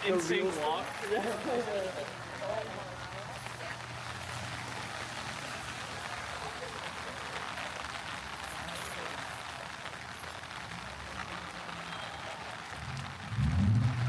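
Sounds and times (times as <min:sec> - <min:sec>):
rain falling on street: 0:00.0 - 0:14.0
loud low-pitched sound: 0:12.8 - 0:14.0.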